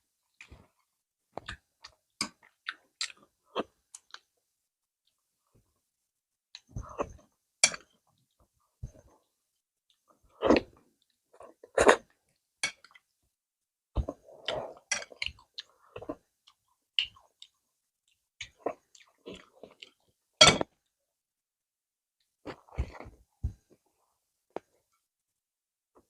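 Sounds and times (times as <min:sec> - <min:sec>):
close chewing with mouth smacks: 0:01.4 - 0:03.3, 0:14.0 - 0:20.1.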